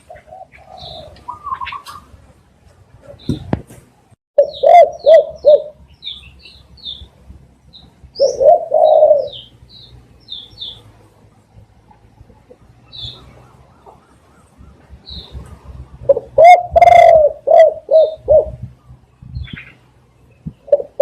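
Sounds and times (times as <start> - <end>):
dove cooing: 0.0 - 2.2, 4.4 - 5.8, 8.1 - 9.6, 12.0 - 19.8, 20.4 - 21.0
small birds chirping: 0.0 - 21.0.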